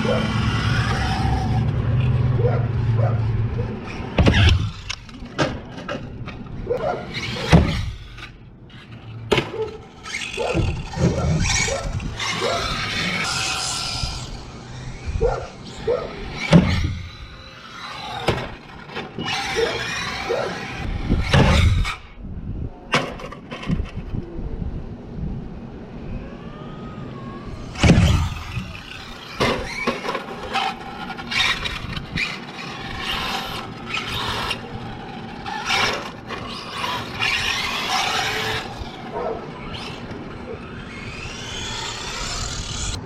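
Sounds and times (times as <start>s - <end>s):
rc car tyres scraping on dirt: 0.0s - 22.2s, 27.6s - 43.0s
rc car landing thuds: 4.1s - 6.2s, 7.1s - 8.2s, 9.3s - 14.0s, 16.4s - 22.0s, 27.6s - 34.6s.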